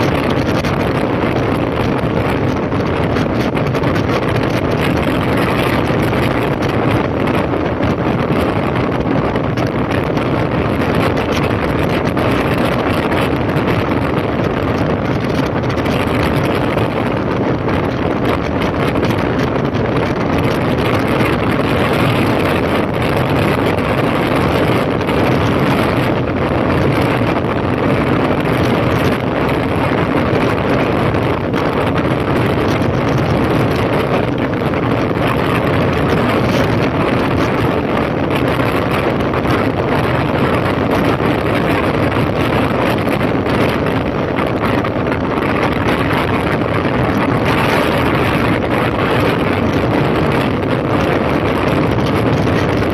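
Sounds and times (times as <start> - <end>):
motorcycle engine running: 0.0 - 52.9
wind rush over microphone: 0.0 - 52.9.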